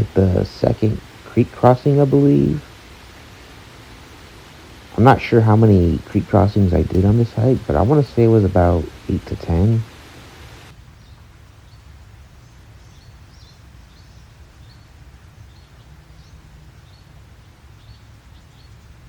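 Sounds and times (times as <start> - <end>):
small bird chirping: 8.8 - 19.0.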